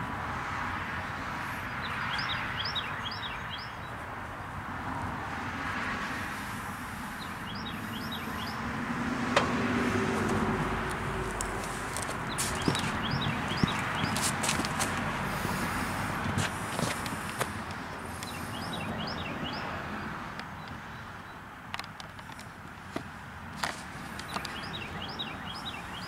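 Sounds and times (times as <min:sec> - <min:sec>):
steady rushing background noise: 0:03.9 - 0:20.7
small bird chirping: 0:07.2 - 0:08.6, 0:12.2 - 0:14.2.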